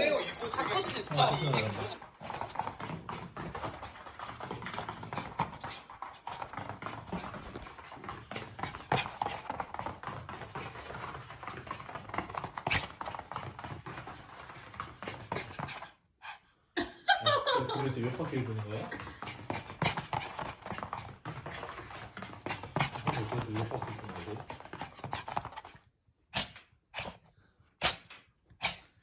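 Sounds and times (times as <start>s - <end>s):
dog claws tapping on floor: 0.4s - 15.9s.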